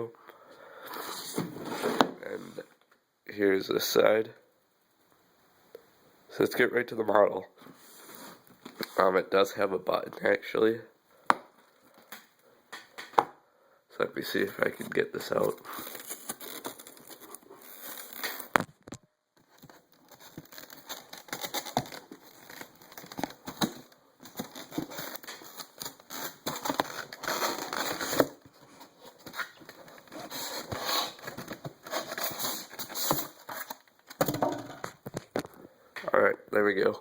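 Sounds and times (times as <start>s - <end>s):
packaging crinkling and rustling: 14.7s - 35.6s.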